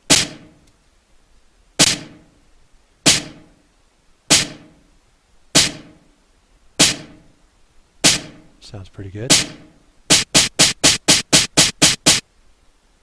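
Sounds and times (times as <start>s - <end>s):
snare drum hit with reverb: 0.0s - 0.6s, 1.8s - 2.3s, 3.1s - 3.6s, 4.3s - 4.8s, 5.6s - 6.0s, 6.8s - 7.2s, 8.0s - 8.5s, 9.3s - 12.2s.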